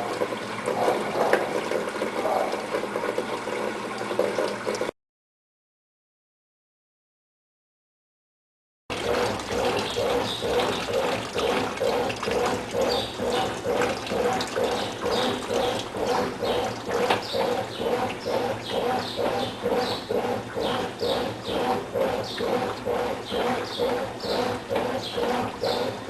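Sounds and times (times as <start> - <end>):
washing machine water sloshing: 0.0 - 4.9, 8.9 - 26.0.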